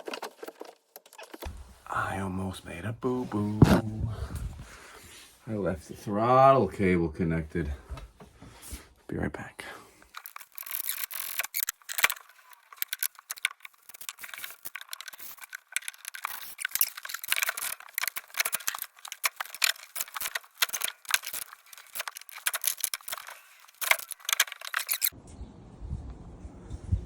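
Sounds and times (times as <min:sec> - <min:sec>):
metal parts and tools clinking: 0:10.1 - 0:25.2.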